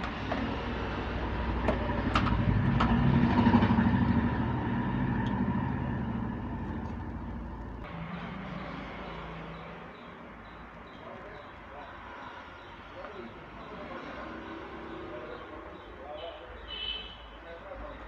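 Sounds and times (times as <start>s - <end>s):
vehicle engine passing by: 0.0s - 10.4s.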